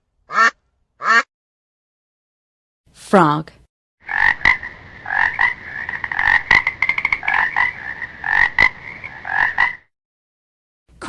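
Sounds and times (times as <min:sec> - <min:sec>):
frog croaking: 0:04.0 - 0:09.9.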